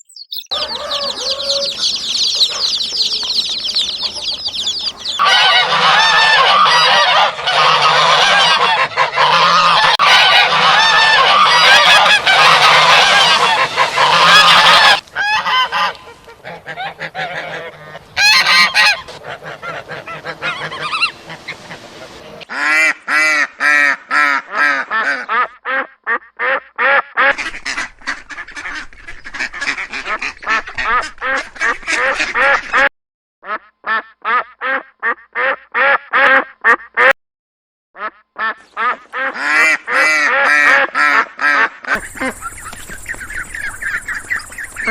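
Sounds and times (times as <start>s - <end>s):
geese honking: 0.3s - 22.9s, 27.3s - 32.8s, 38.4s - 44.9s.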